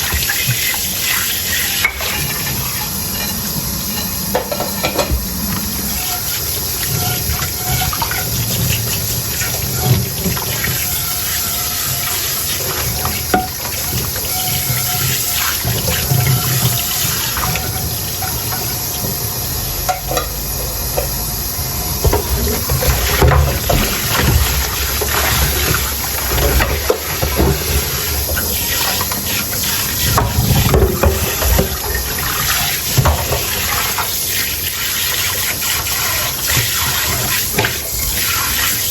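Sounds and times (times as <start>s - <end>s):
tap water running into sink: 0.0s - 38.9s
dishes clinking: 1.7s - 5.4s, 19.8s - 21.2s.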